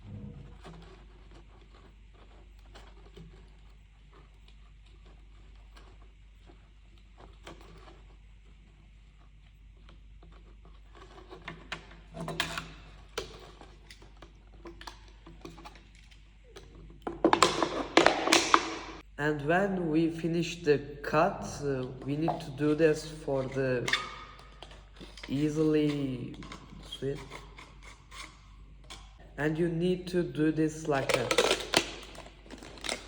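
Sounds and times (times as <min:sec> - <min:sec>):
plastic crinkling and clicking: 0:09.8 - 0:19.0, 0:30.8 - 0:33.0
plastic bottle being cut: 0:17.1 - 0:19.0, 0:30.9 - 0:33.0.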